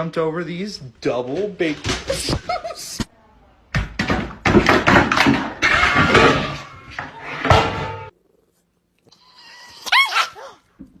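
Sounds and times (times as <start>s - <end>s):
clatter and thumps: 3.7s - 8.1s.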